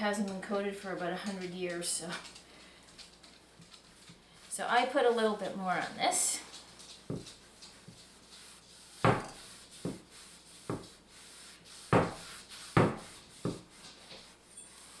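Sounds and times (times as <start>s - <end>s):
faint rubbing: 7.2s - 15.0s.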